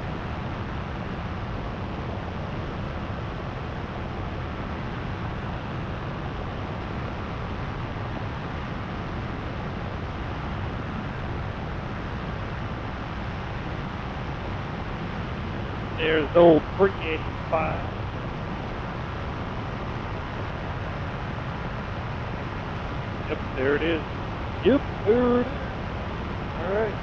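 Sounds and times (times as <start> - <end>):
paramotor engine droning: 9.2 - 27.0.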